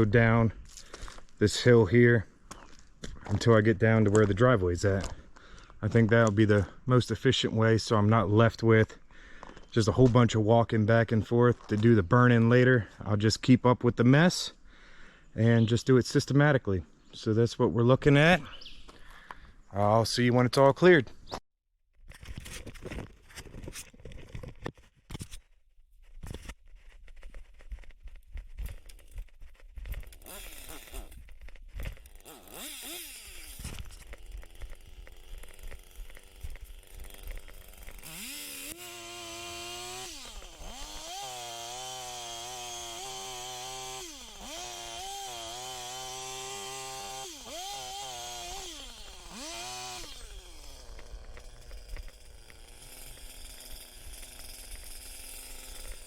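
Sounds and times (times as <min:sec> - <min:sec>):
chainsaw revving: 0:30.1 - 0:31.2, 0:32.0 - 0:56.0.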